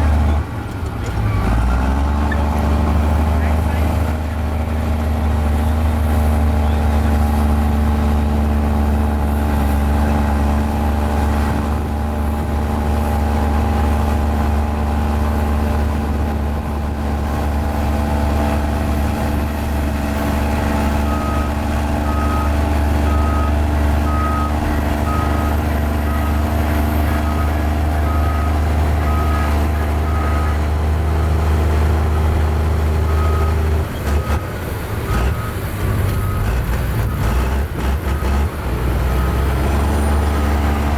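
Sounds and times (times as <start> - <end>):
bulldozer diesel engine running: 0.0 - 40.9
reversing alarm beeping: 20.8 - 26.4, 27.1 - 30.6.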